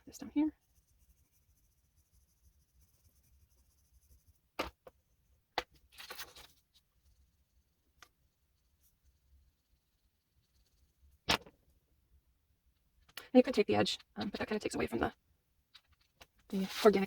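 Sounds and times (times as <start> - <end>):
oil pastel scratching on paper: 0.0 - 5.2, 5.9 - 7.8, 8.5 - 11.2, 15.8 - 17.0.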